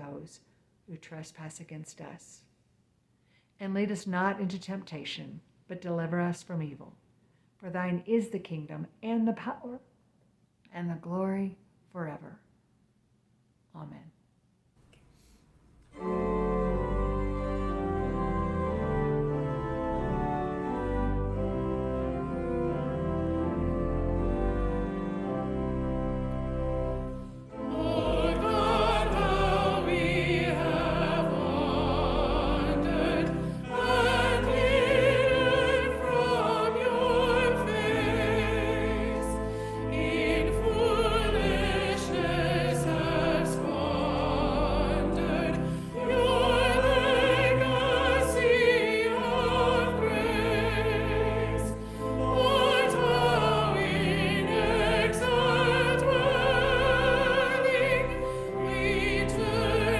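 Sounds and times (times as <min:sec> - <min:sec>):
instrumental accompaniment: 0:15.8 - 0:59.9
classical singing with vibrato: 0:27.2 - 0:59.9.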